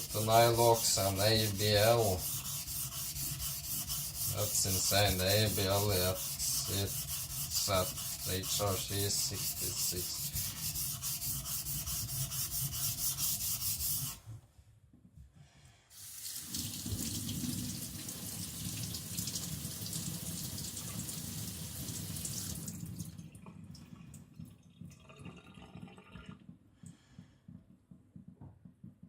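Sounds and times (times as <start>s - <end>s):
blade grinding on water stone: 0.0s - 14.2s
water running from tap: 16.0s - 26.0s.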